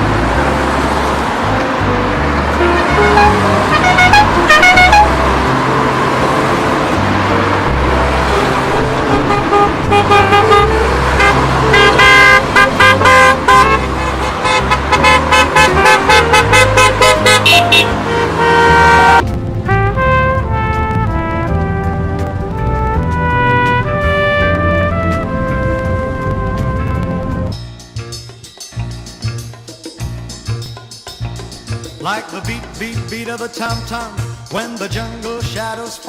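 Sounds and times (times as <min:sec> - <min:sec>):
cars running: 0:00.0 - 0:27.6
short car horn toots: 0:02.6 - 0:05.2, 0:09.3 - 0:19.2.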